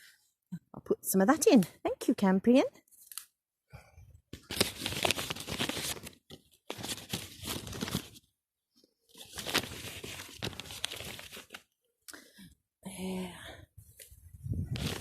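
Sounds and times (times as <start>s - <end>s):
plant stems rustling and tearing: 2.9s - 3.4s.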